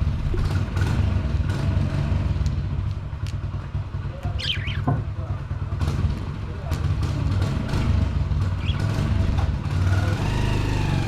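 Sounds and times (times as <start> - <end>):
budgerigar warbling chirp: 4.4 - 4.9.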